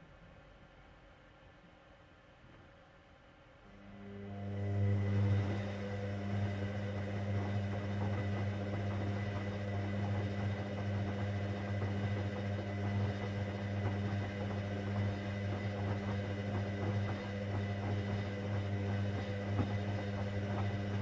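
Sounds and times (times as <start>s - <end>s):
drain pump humming: 4.4s - 21.0s.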